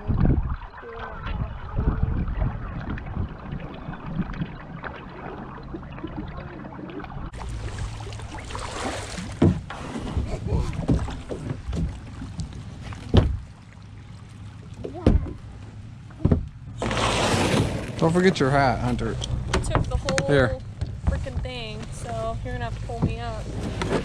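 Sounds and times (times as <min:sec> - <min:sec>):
water sloshing against hull: 0:00.0 - 0:24.0
paddle strokes: 0:00.5 - 0:24.0
sharp knocks on kayak: 0:09.2 - 0:10.2, 0:10.8 - 0:12.4, 0:13.0 - 0:13.5, 0:14.8 - 0:15.4, 0:16.2 - 0:18.0.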